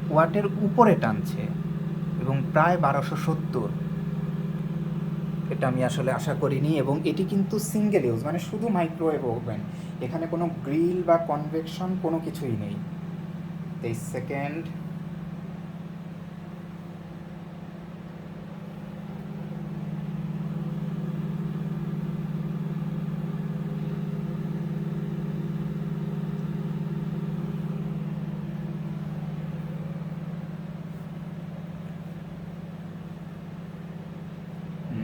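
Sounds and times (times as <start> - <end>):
microwave oven humming: 0.0 - 35.0.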